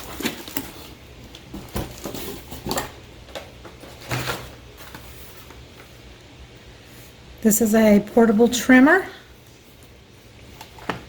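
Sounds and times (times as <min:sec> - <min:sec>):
packaging rustling: 0:00.0 - 0:05.9.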